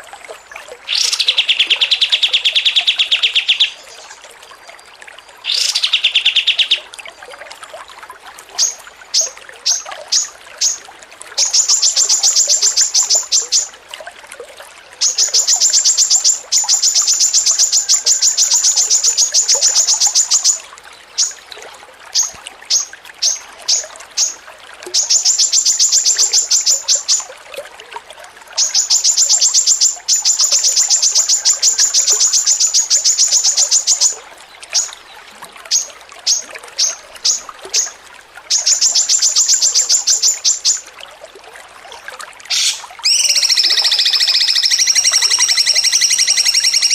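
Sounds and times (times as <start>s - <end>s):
songbird chattering song: 0.9s - 4.2s, 5.4s - 6.9s, 11.4s - 13.7s, 15.0s - 20.6s, 21.2s - 21.4s, 25.0s - 27.3s, 28.6s - 35.0s, 35.7s - 40.8s, 42.5s - 46.9s.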